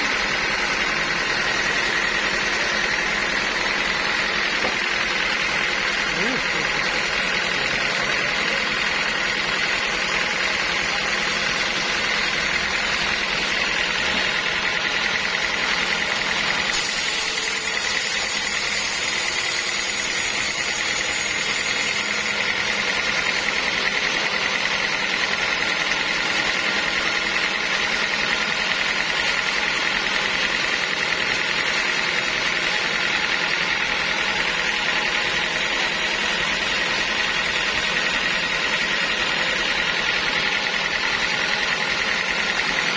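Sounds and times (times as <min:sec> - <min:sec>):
sawmill machinery droning: 0:00.0 - 0:42.9.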